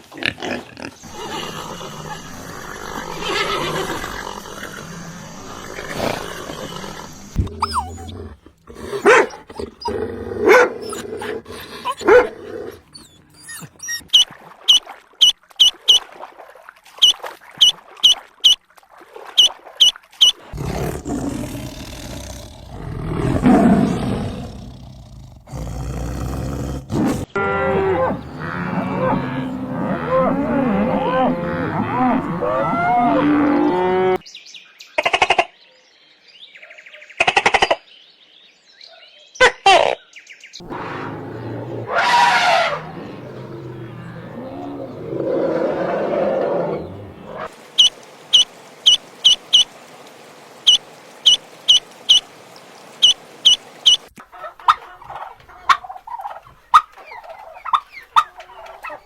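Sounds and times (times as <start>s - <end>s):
overlapping animal calls: 1.0s - 14.3s, 27.7s - 34.2s, 40.6s - 59.0s
long low animal call: 1.1s - 14.1s, 40.6s - 54.1s.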